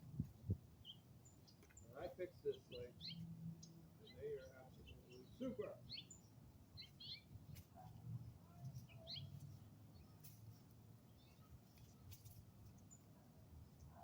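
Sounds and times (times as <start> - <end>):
bird chirping: 0.8 - 7.3, 8.6 - 10.2, 11.1 - 12.1.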